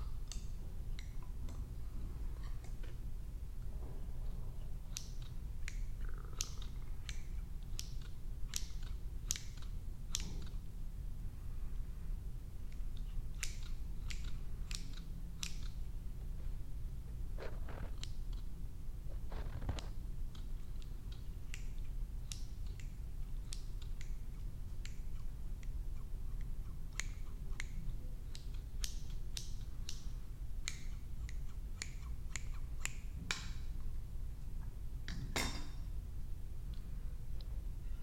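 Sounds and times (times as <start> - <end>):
low steady hum: 0.0 - 38.0
sharp crisp clicks and snaps: 0.1 - 1.7, 4.9 - 10.6, 12.7 - 15.8, 17.7 - 18.5, 19.3 - 24.2, 26.4 - 33.8.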